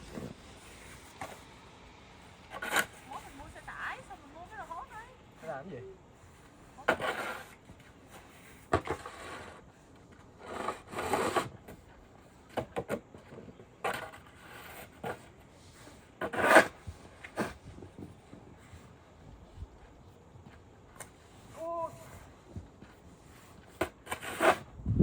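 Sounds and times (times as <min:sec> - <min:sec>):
scraping strokes: 0:02.2 - 0:11.9, 0:13.8 - 0:19.0, 0:21.0 - 0:24.7.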